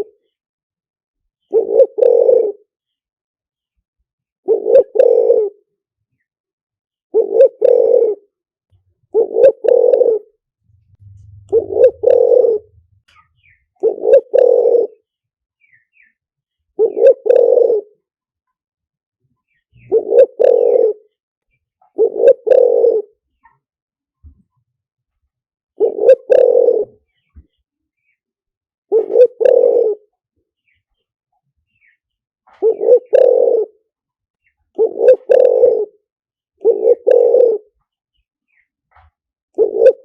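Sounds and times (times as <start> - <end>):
dove cooing: 1.5 - 2.7, 4.5 - 5.6, 7.1 - 8.3, 9.1 - 15.0, 16.8 - 18.0, 19.8 - 21.1, 21.9 - 23.2, 25.8 - 27.0, 28.9 - 30.1, 32.6 - 33.8, 34.8 - 36.0, 36.6 - 37.8, 39.6 - 40.0.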